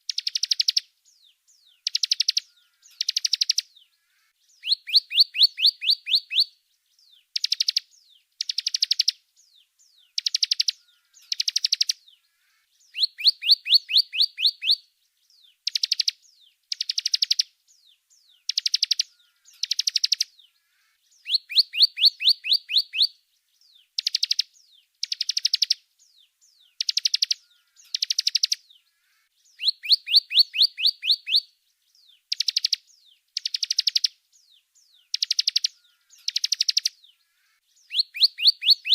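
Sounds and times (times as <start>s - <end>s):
songbird chirping rapidly: 0.0s - 38.9s.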